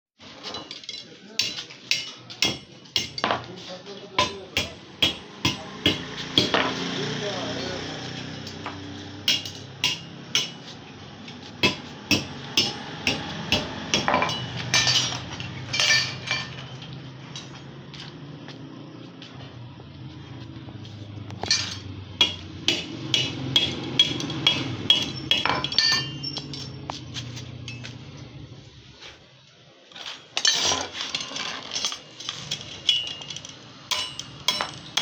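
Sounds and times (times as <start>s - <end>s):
hammer striking steel: 1.4s - 3.5s, 4.2s - 7.0s, 8.5s - 10.8s, 11.6s - 16.6s, 21.4s - 27.0s, 32.9s - 35.0s.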